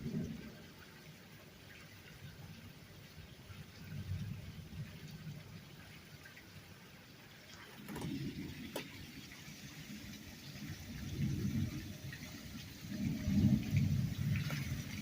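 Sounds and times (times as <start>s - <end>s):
low thunder rumbles: 0.0s - 0.8s, 7.8s - 15.0s
steady rain: 0.0s - 15.0s
rain drop ticks: 7.5s - 15.0s.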